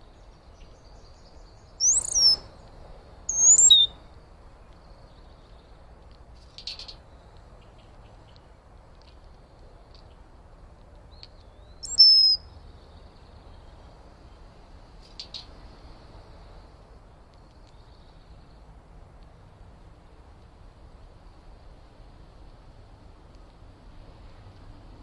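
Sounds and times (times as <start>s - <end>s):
faint steady hiss: 0.0s - 25.0s
loud bird whistle call: 1.8s - 2.4s, 3.3s - 4.0s, 11.8s - 12.4s
faint short bird chirps: 1.8s - 2.5s, 3.3s - 4.0s, 11.5s - 12.4s.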